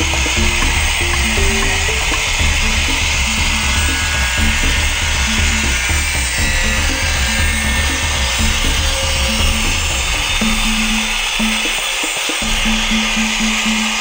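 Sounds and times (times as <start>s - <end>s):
angle grinder cutting metal: 0.0s - 14.0s
background music with bass beat: 0.0s - 14.0s.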